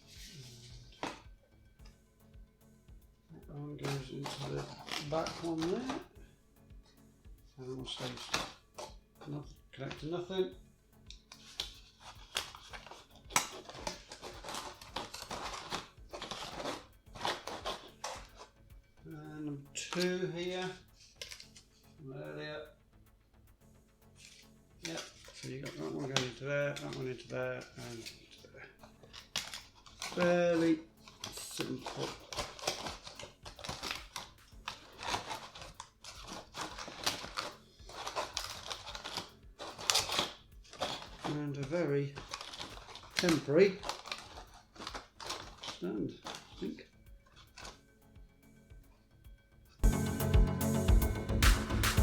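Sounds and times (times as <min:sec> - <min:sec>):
cardboard rustling and scraping: 0:00.0 - 0:01.4, 0:03.3 - 0:06.2, 0:07.7 - 0:18.6, 0:24.2 - 0:47.8.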